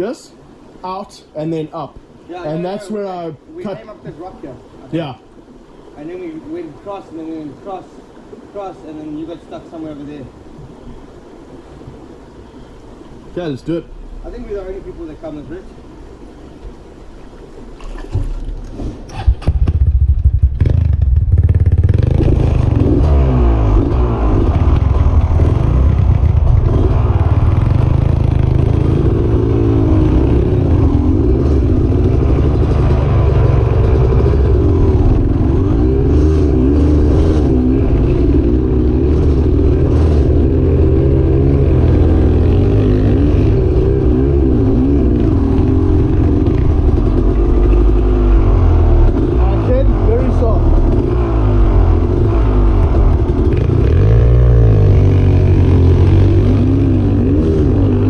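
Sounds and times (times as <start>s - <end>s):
dirt bike engine revving: 18.1s - 58.0s.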